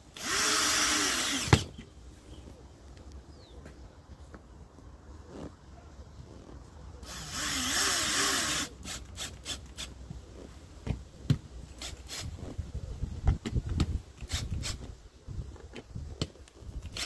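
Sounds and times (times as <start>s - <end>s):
power drill running: 0.2s - 1.8s, 7.0s - 9.6s.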